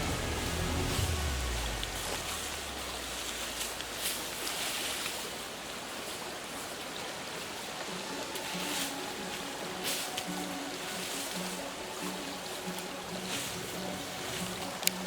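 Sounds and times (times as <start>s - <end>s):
low background music: 0.0s - 4.0s, 7.6s - 15.0s
steady hiss of water: 0.0s - 15.0s.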